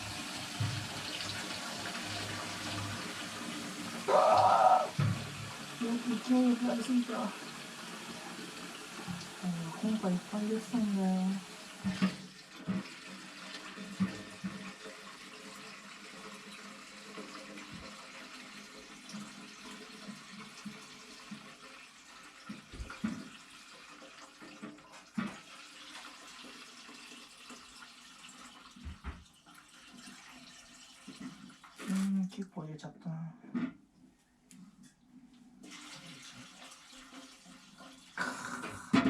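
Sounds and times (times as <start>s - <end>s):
liquid pouring into tank: 0.0s - 10.3s, 11.4s - 32.4s, 35.6s - 39.0s.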